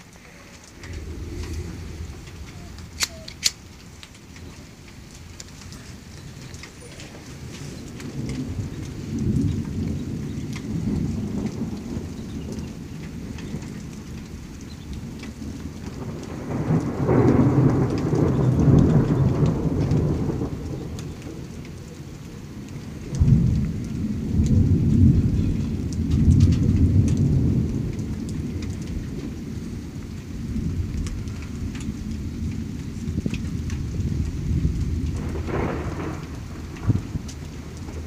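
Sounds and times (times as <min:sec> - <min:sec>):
raindrops ticking: 0:00.0 - 0:38.0
thunder rumbling: 0:00.0 - 0:38.0.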